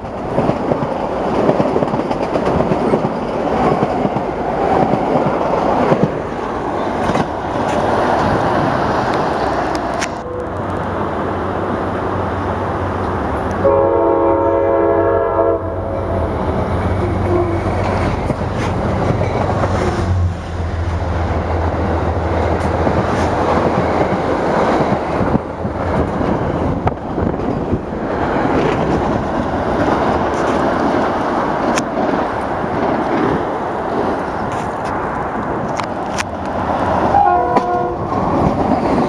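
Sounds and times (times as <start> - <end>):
train wheels rumbling on rails: 0.0 - 39.0
train chord horn: 13.6 - 16.3, 37.1 - 38.1.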